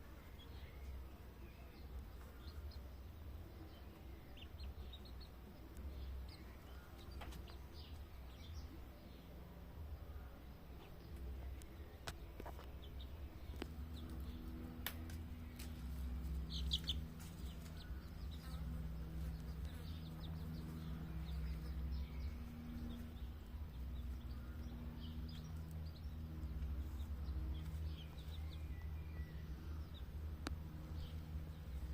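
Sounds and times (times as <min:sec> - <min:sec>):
chicks peeping: 0:00.0 - 0:31.9
steady low hum: 0:00.0 - 0:31.9.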